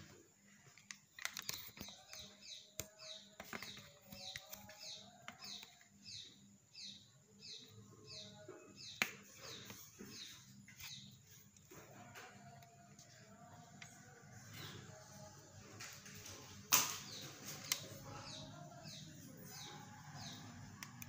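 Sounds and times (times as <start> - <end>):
small bird chirping: 1.4 - 11.4.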